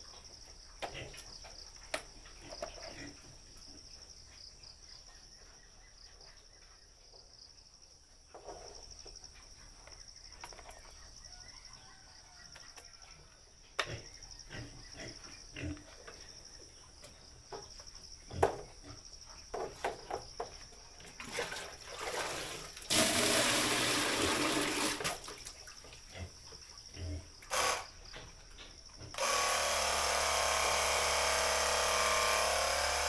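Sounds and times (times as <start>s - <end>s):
insects chirring: 23.5s - 33.0s.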